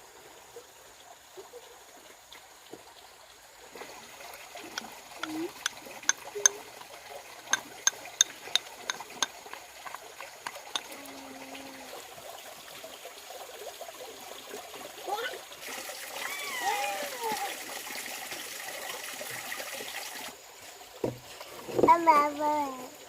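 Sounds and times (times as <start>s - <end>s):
trickling water: 0.0s - 23.0s.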